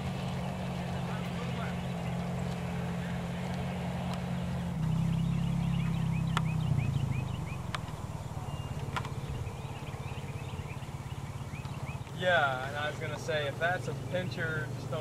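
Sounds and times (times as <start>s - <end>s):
bird chirping: 0.0s - 15.0s
sharp clicks: 6.3s - 6.6s, 7.6s - 8.0s.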